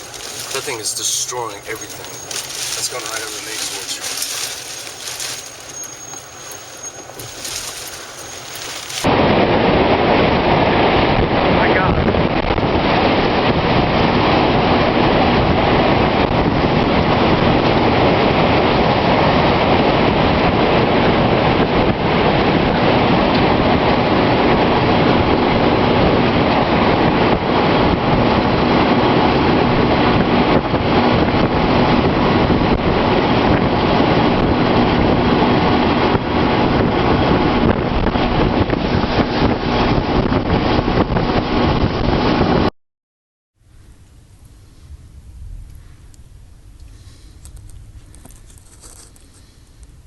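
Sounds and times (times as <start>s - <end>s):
strong wind on microphone: 9.0s - 42.7s.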